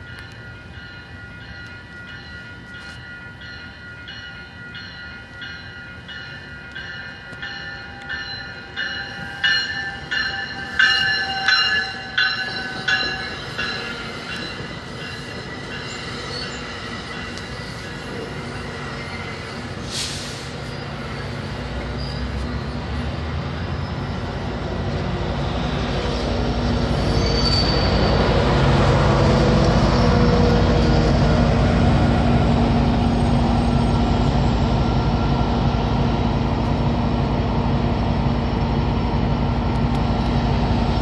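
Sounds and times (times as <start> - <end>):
train rumbling on tracks: 0.0 - 41.0.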